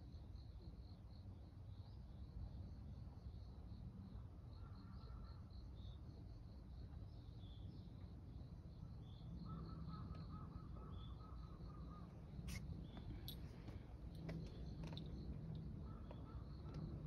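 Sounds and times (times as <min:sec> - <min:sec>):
insects chirping: 0:00.3 - 0:17.0.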